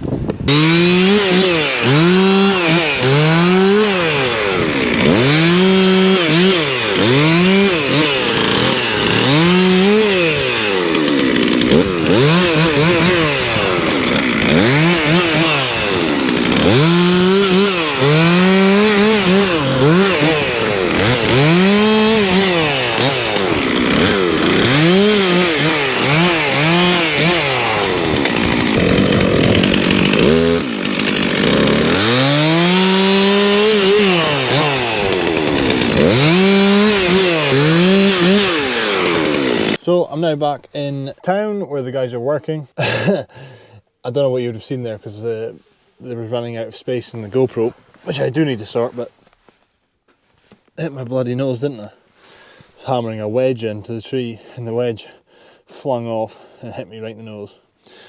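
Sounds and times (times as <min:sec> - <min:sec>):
chainsaw revving cutting wood: 0:00.5 - 0:39.8.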